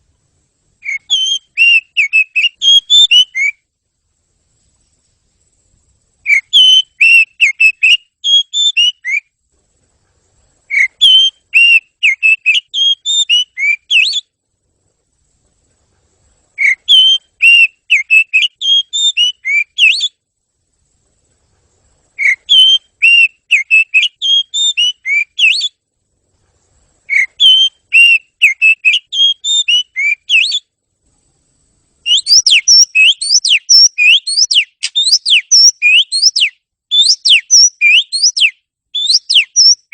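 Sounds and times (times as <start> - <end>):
bird singing whistled notes: 0.8 - 3.7, 5.9 - 9.4, 10.7 - 14.4, 16.6 - 20.3, 22.1 - 25.8, 27.1 - 30.8, 32.0 - 39.9.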